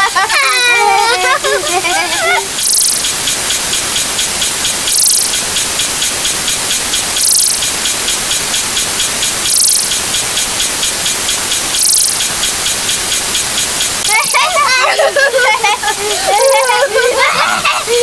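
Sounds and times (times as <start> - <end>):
hissing wash of sound effects: 0.0 - 18.0
bright burst: 0.8 - 17.2
small regular ticks: 1.8 - 14.6.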